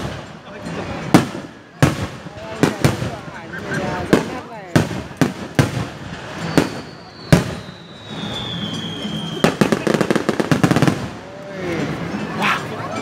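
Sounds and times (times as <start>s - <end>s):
firework bangs: 0.0s - 11.2s
crackling firework pops: 4.0s - 11.2s
falling firework whistle: 6.2s - 10.3s.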